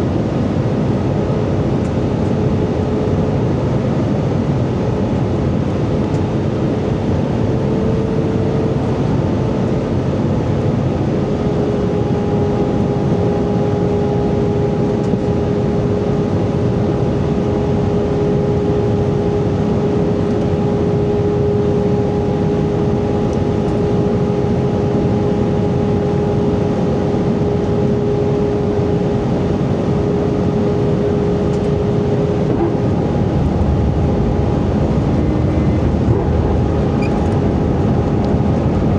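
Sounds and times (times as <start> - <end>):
engine hum: 0.0 - 38.9
rush of air and engines: 0.0 - 38.9.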